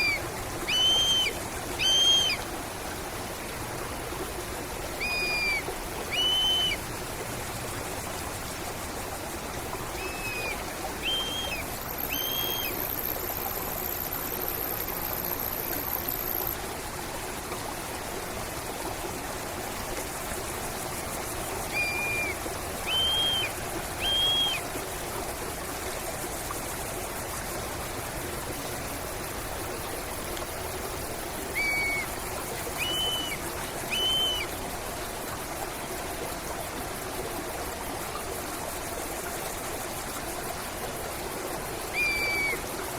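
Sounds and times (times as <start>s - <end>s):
bird whistling: 0.0s - 2.4s, 5.0s - 6.8s, 10.0s - 13.0s, 21.7s - 24.6s, 31.5s - 32.1s, 32.8s - 34.5s, 41.9s - 42.6s
stream rushing: 0.0s - 42.9s.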